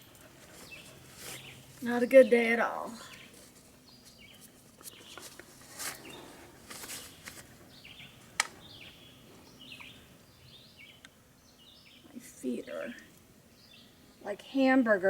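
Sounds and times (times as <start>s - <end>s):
soft rustles: 0.1s - 1.9s, 3.0s - 7.6s.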